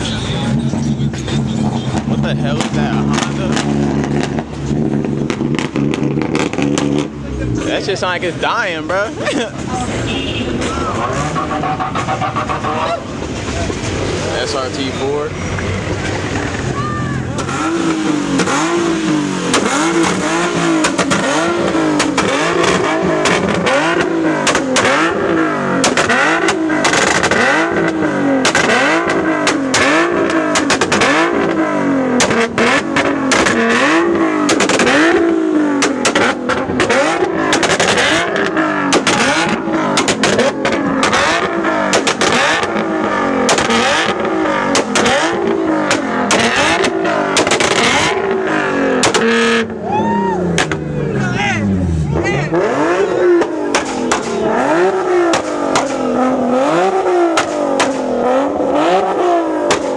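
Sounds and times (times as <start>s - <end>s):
car engines revving: 0.0s - 59.9s
exhaust pops and cracks: 1.1s - 7.2s, 17.3s - 49.6s, 50.5s - 50.9s, 53.3s - 56.3s, 57.0s - 58.3s, 59.6s - 59.9s.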